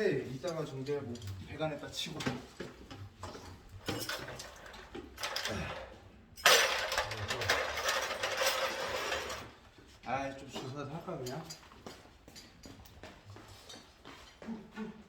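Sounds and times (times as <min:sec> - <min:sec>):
tools knocking and clicking: 0:02.2 - 0:05.7.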